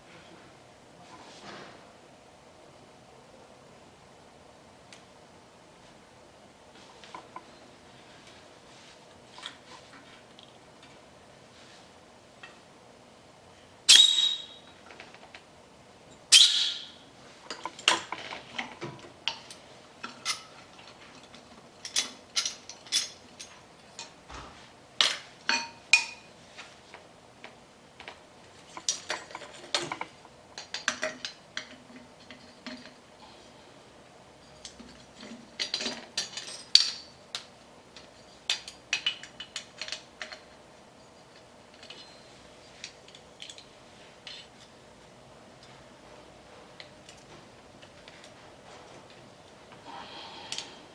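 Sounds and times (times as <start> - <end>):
metal tools clinking: 19.3 - 24.2, 34.5 - 37.1, 38.0 - 44.7.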